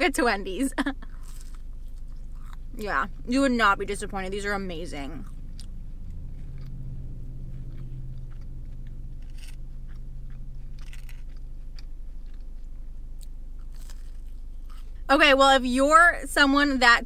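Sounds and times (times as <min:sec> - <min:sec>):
low steady hum: 0:00.0 - 0:17.0
chewing food with crunches: 0:01.0 - 0:03.2, 0:05.0 - 0:15.1.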